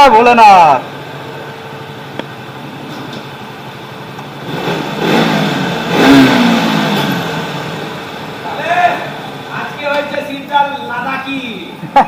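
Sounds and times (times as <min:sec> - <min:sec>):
motorcycle engine revving: 0:00.9 - 0:09.8.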